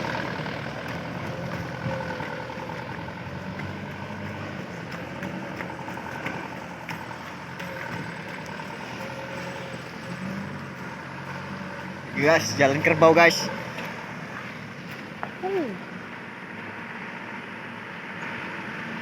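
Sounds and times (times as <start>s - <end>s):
knocks and rattles: 0.0s - 12.2s
truck engine running: 0.0s - 19.0s.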